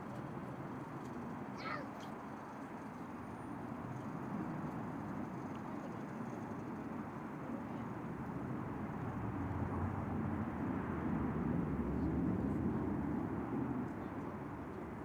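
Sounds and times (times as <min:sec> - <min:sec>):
jet aircraft roar: 0:06.6 - 0:15.0.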